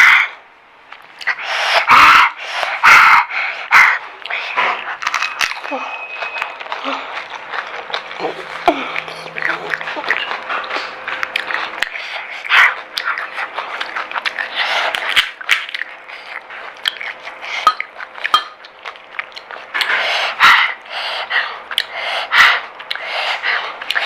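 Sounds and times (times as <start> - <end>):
heavy breathing: 1.2 - 5.0, 8.2 - 12.6, 19.8 - 23.9
crisp shells crunching: 4.8 - 11.9.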